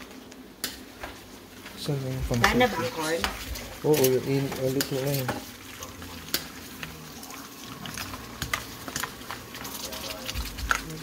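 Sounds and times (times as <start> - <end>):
utensil tapping pan and shells: 2.4 - 7.0, 7.8 - 11.0.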